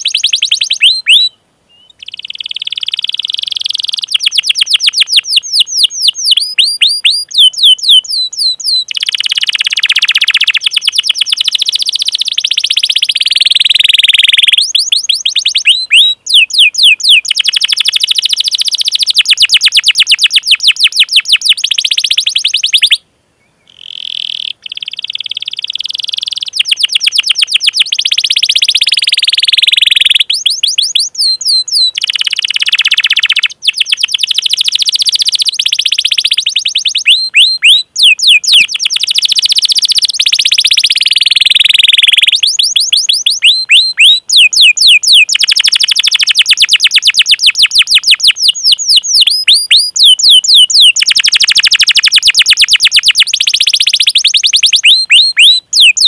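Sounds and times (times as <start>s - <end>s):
canary trilling: 0.0s - 23.0s, 23.8s - 56.0s.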